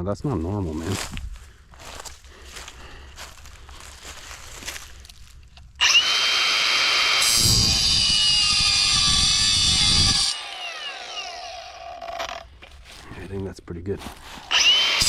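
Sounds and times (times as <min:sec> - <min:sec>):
blade cutting metal: 0:05.8 - 0:12.5, 0:14.5 - 0:15.0
power saw whining: 0:05.8 - 0:12.8, 0:14.4 - 0:15.0.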